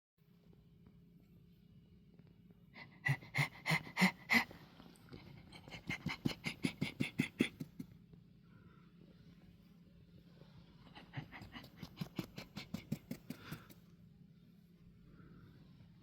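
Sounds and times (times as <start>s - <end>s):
person making monkey-like calls: 5.8s - 7.9s.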